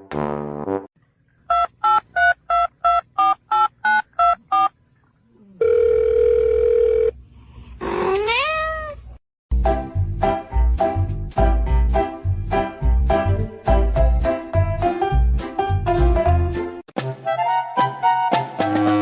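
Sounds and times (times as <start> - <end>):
animal cry: 7.8 - 9.1.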